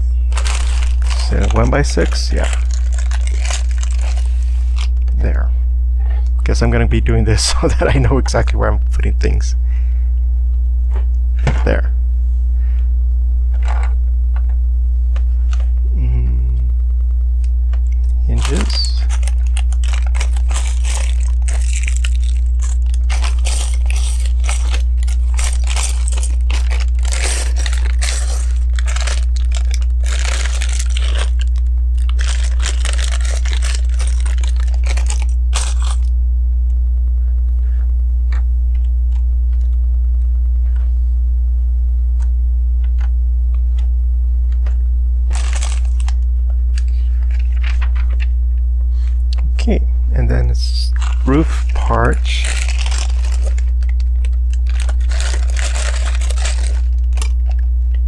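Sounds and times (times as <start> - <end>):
steady low hum: 0.0 - 58.0
plastic pieces rummaged: 0.3 - 4.9, 18.3 - 36.1, 45.3 - 48.2, 50.9 - 57.6.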